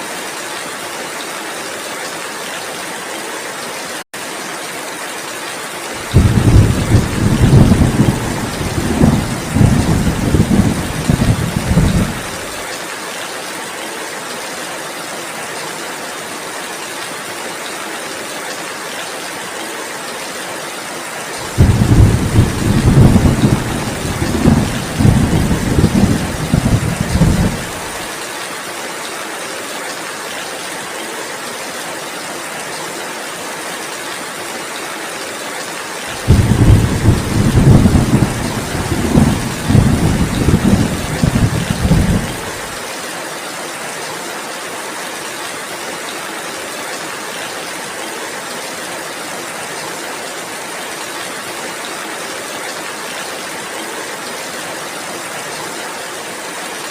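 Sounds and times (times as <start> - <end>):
heavy rain: 0.0 - 56.9
low thunder rolling: 6.1 - 12.6, 21.5 - 28.0, 36.2 - 42.6.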